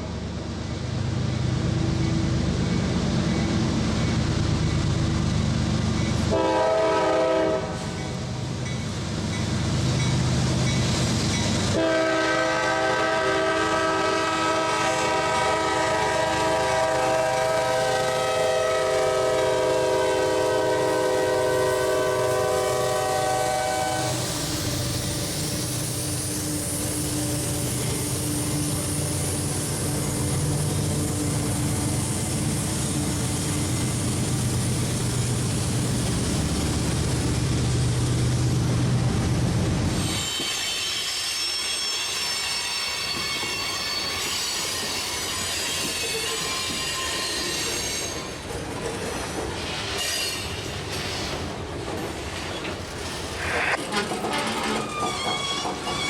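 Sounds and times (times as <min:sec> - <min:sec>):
train wheels on rails: 0:00.0 - 0:56.0
locomotive air horn: 0:06.3 - 0:08.0, 0:11.7 - 0:24.3.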